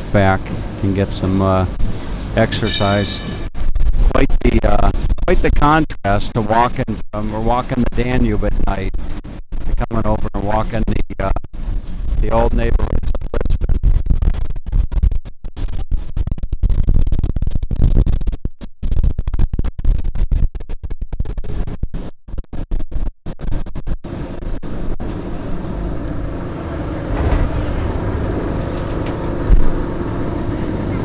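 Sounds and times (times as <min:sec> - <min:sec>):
tram running rumble: 0:00.0 - 0:03.5, 0:24.1 - 0:31.0.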